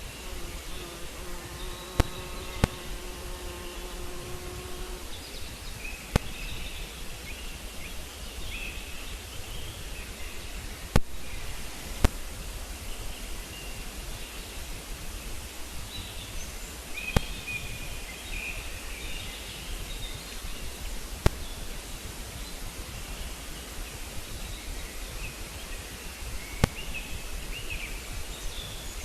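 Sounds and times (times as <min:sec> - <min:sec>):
faint bird chirps: 0:00.0 - 0:29.0
steady outdoor noise: 0:00.0 - 0:29.0
sharp clicks: 0:01.9 - 0:03.0.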